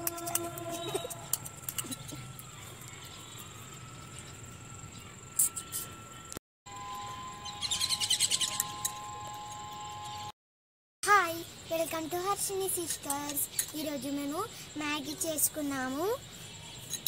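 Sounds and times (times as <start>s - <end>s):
faint steady high tones: 0.0s - 10.4s.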